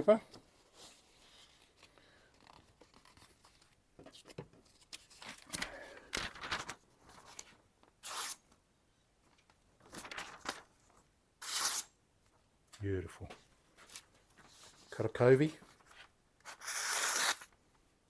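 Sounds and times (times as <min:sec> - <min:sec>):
knife slicing through paper: 0:11.4 - 0:11.9, 0:16.5 - 0:17.5.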